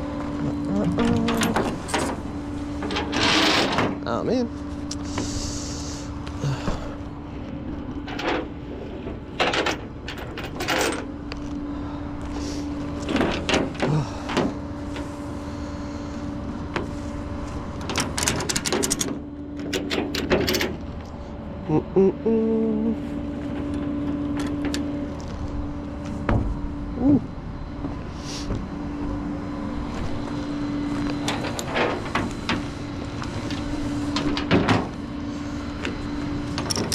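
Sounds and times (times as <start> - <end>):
truck engine running: 0.0 - 36.9.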